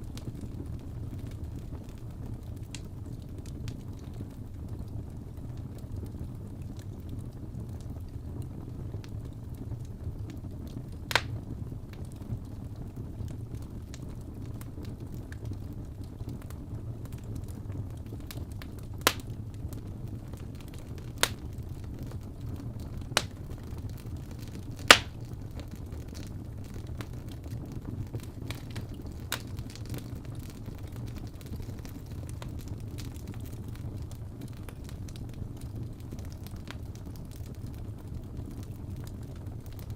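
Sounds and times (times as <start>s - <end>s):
wood fire rumbling: 0.0s - 39.9s
sharp pops of burning wood: 11.0s - 12.2s, 18.1s - 21.8s, 23.1s - 33.8s.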